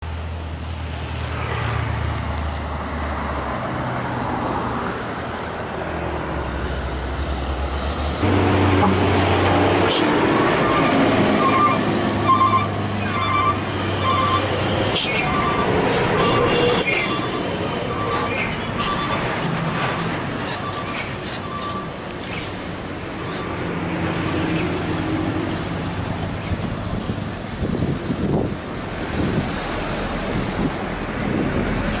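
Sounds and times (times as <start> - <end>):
diesel truck engine under load: 5.7 - 32.0
brief high squeals: 10.4 - 19.2.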